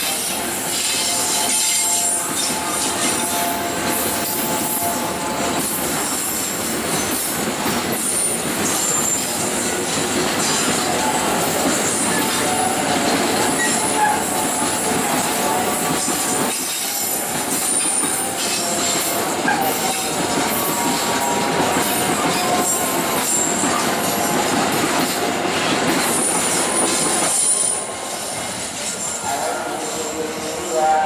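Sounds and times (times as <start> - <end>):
freight train rattling past: 0.0 - 31.0
high wheel squeal: 8.1 - 9.4, 10.4 - 24.4.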